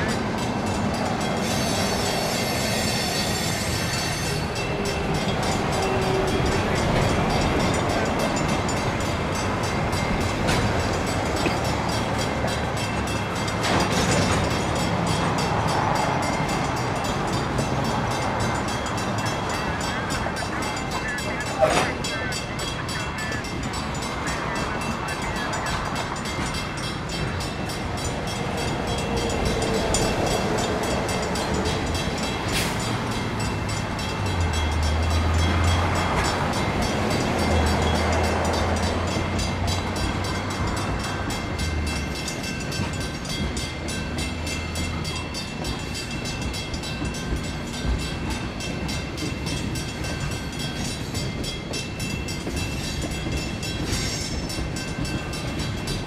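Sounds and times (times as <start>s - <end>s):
crossing bell ringing rapidly: 0.0s - 56.0s
freight train rolling: 0.0s - 56.0s
locomotive engine drone: 0.0s - 56.0s.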